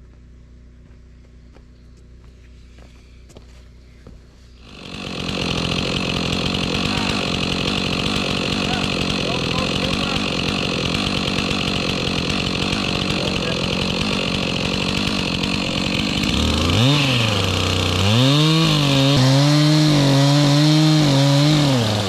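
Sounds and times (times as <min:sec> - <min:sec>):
chainsaw idling and revving: 0:04.6 - 0:22.0.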